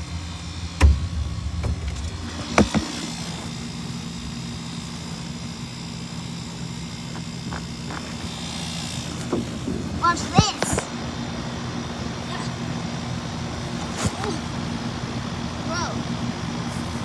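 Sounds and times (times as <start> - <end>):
compressor hum: 0.0 - 17.0
fan rushing: 0.0 - 17.0
sharp knocks: 0.8 - 3.6.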